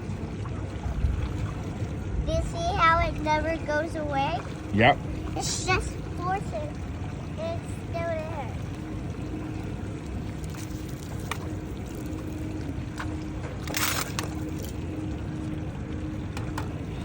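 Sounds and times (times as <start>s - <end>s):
boat rumbling on water: 0.0s - 17.0s
faint hum: 0.0s - 17.0s
water sloshing: 0.0s - 17.0s
water splash: 10.2s - 15.3s.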